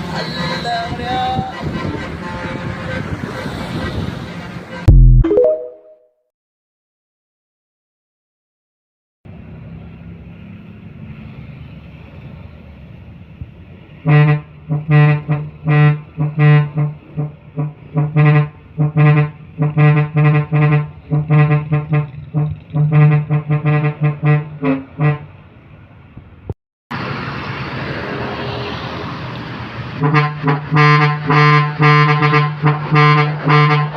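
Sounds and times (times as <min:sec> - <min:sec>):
truck horn honking: 0:00.2 - 0:05.6, 0:14.0 - 0:25.3, 0:30.0 - 0:33.9.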